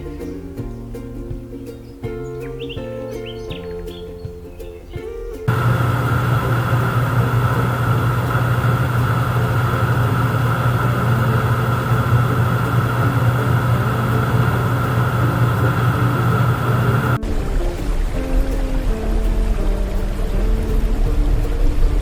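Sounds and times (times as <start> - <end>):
motor running with hum and whine: 5.5 - 22.0.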